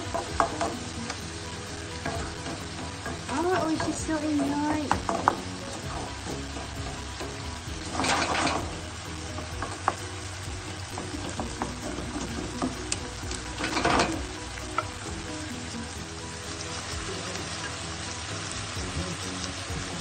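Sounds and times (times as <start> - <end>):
food sizzling in a frying pan: 0.0 - 20.0
wooden spatula stirring: 10.9 - 15.1.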